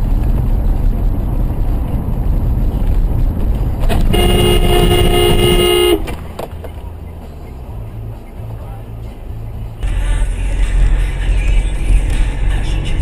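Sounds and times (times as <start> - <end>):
car driving rumble: 0.0 - 13.0
car horn blaring: 3.9 - 6.2.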